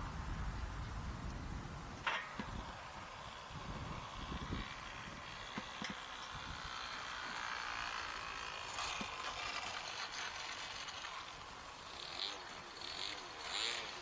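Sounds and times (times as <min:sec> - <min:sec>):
model airplane engine buzzing: 0:00.0 - 0:14.0.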